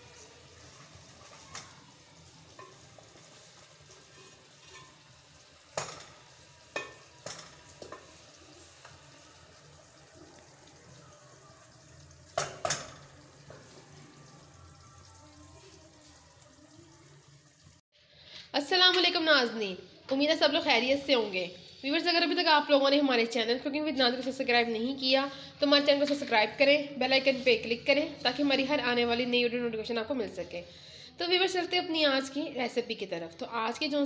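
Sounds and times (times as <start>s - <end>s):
food sizzling in a pot: 0.0s - 17.9s, 20.4s - 23.5s, 24.1s - 29.2s.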